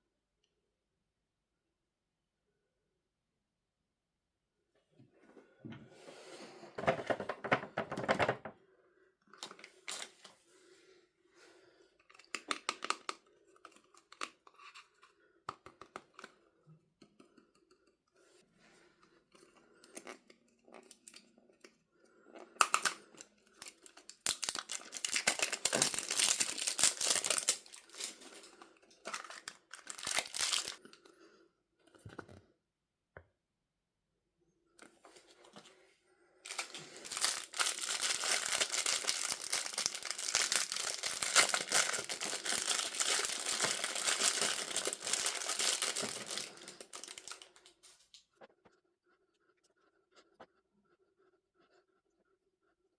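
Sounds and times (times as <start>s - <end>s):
plastic packaging tearing and crinkling: 23.6s - 28.3s, 29.0s - 30.8s, 36.5s - 47.5s.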